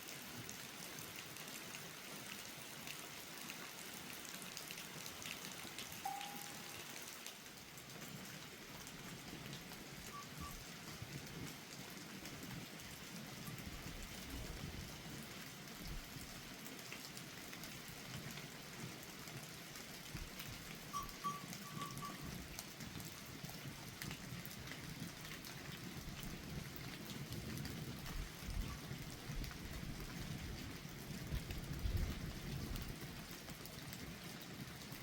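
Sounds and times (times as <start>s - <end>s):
rain falling: 0.0s - 35.0s
raindrops ticking close by: 0.0s - 35.0s
short high chirps: 6.1s - 6.8s, 21.0s - 22.3s.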